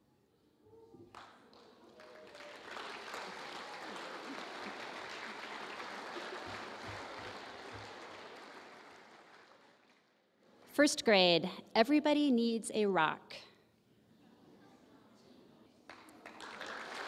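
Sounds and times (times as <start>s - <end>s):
audience applauding: 1.1s - 10.2s, 15.9s - 17.0s.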